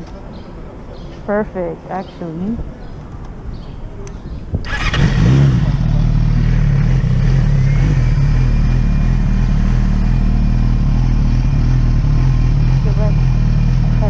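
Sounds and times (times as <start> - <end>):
motorcycle engine starting and idling: 4.6 - 14.0.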